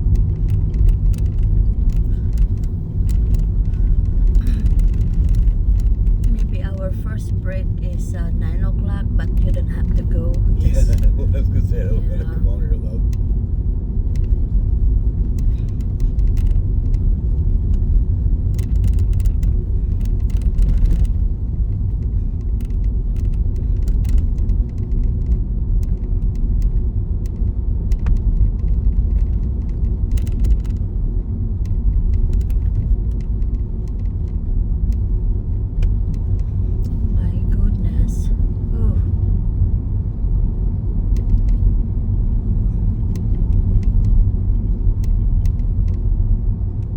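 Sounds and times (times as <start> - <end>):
car driving on snow: 0.0 - 46.9
faint ticks: 21.9 - 30.8.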